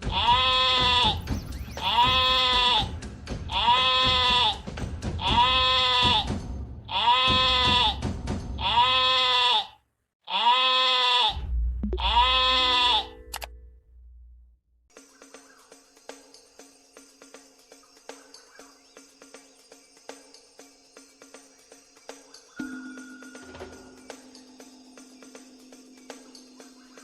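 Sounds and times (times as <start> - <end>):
sheep or goat bleating: 0.0 - 6.3, 6.9 - 8.0, 8.6 - 11.4, 12.0 - 13.2
low rumble: 11.4 - 12.6.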